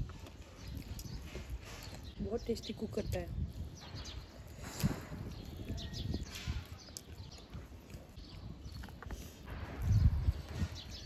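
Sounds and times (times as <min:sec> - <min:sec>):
chewing and lip smacking: 0:00.0 - 0:02.1, 0:03.6 - 0:09.5.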